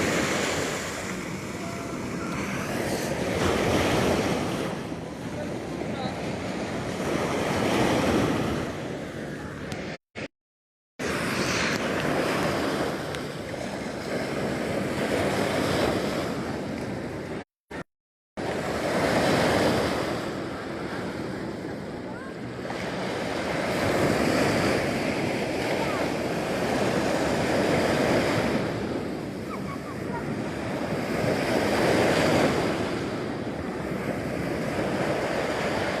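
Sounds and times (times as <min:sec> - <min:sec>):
sea waves washing on shore: 0:00.0 - 0:10.0, 0:11.0 - 0:17.4, 0:18.4 - 0:36.0.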